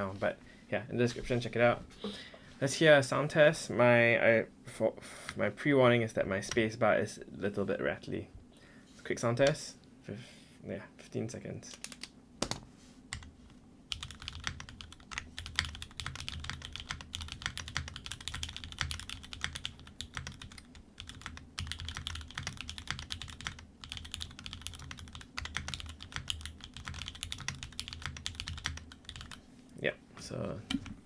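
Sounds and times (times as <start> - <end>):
mechanical keyboard typing: 13.9 - 29.4.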